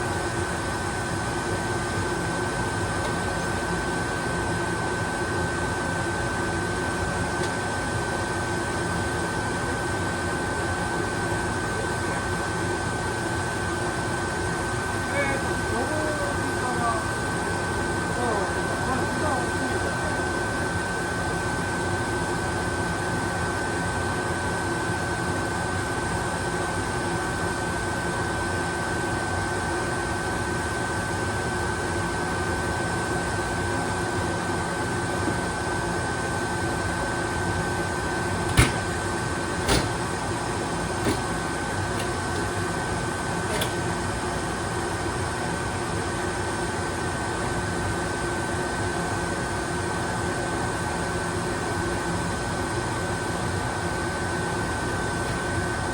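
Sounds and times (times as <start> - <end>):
electrical hum with high whine: 0.0 - 55.9
sharp clicks or knocks: 39.7 - 40.0.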